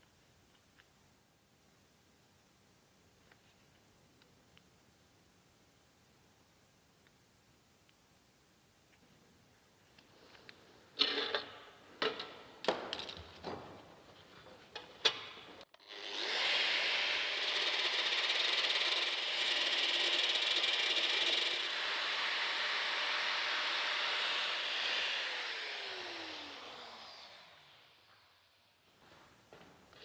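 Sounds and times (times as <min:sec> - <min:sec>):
power tool whirring: 0:15.7 - 0:28.5.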